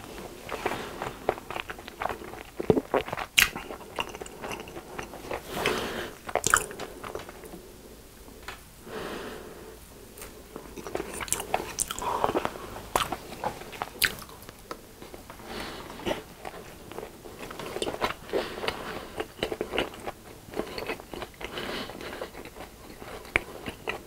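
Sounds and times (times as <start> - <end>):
crunchy chewing: 0.0 - 7.6, 10.2 - 24.0
wet mouth sounds: 1.4 - 5.4, 6.2 - 6.8, 10.7 - 14.4.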